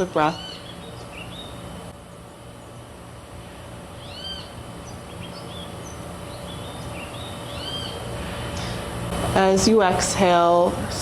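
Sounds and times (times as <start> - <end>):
low background hum: 0.0 - 11.0
bird call rising and falling: 3.5 - 8.9.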